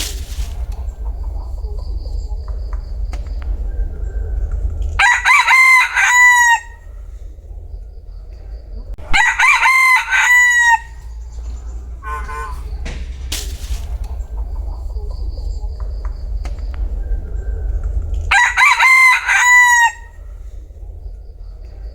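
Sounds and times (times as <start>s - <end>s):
steady low rumble: 0.0s - 21.9s
rooster crowing: 5.0s - 7.2s, 9.0s - 12.8s, 18.3s - 20.5s.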